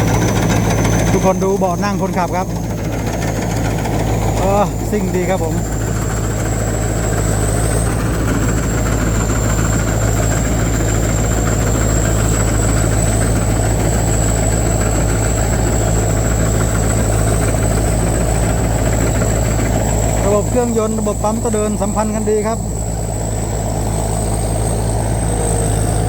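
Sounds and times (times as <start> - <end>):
combine harvester engine drone: 0.0 - 26.0
thin high whine: 7.8 - 26.0.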